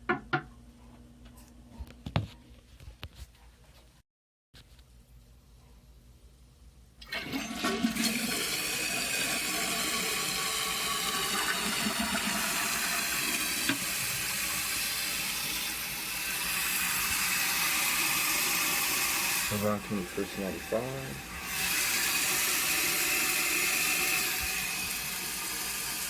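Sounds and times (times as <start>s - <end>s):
toilet flushing: 7.0s - 26.0s.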